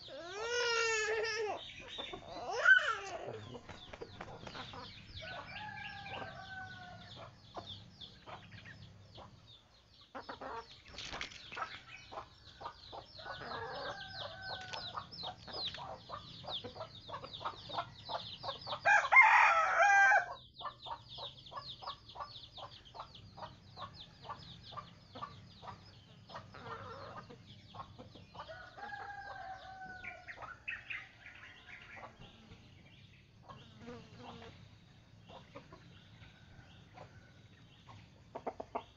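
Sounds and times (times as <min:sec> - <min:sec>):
chickens clucking: 0:00.0 - 0:19.2, 0:20.3 - 0:38.9
rooster crowing: 0:05.1 - 0:07.2, 0:13.2 - 0:15.0, 0:18.8 - 0:20.4, 0:28.4 - 0:30.4.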